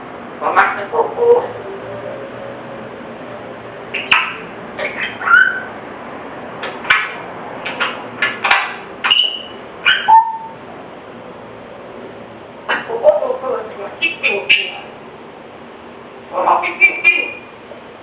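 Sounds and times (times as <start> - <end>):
parrot calls clicks and whistles: 4.0 - 5.7, 7.7 - 10.5.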